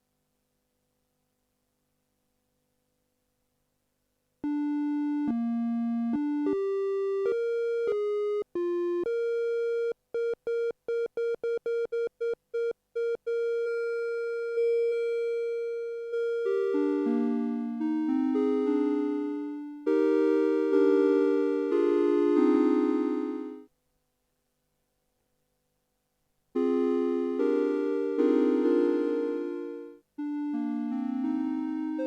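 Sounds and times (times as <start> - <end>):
synthesizer playing notes: 13.6 - 23.6, 26.6 - 32.0.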